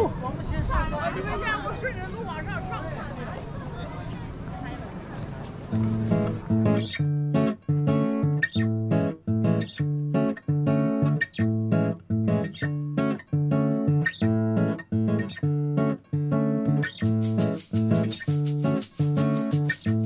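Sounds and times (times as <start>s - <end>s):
acoustic guitar bossa nova rhythm: 5.7s - 20.0s.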